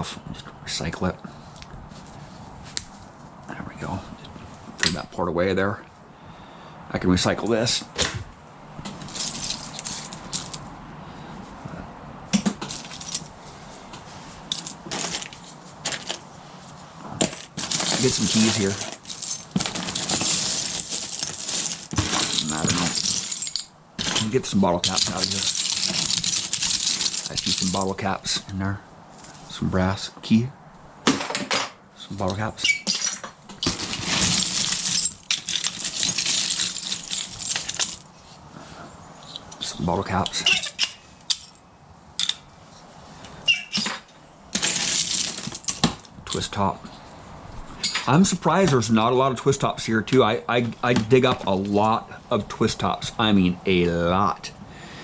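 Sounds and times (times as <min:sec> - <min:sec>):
metal junk clinking: 0:08.9 - 0:10.7, 0:12.4 - 0:13.4, 0:14.5 - 0:16.3, 0:17.1 - 0:28.0, 0:32.7 - 0:38.1, 0:40.3 - 0:41.6, 0:43.7 - 0:46.4.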